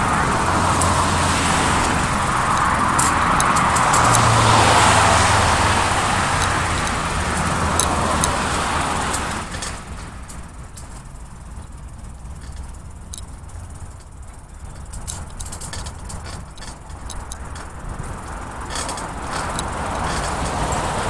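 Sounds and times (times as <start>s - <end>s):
car driving past: 0.0s - 9.6s
background traffic: 0.0s - 21.0s
faint ticks: 6.4s - 20.8s.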